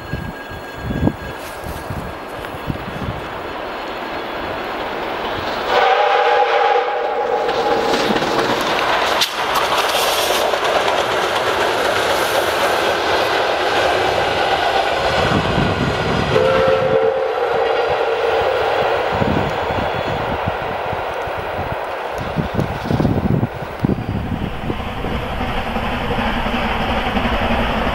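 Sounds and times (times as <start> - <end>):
train running: 0.0 - 27.9
steam locomotive chime whistle: 5.7 - 7.8, 16.3 - 20.4.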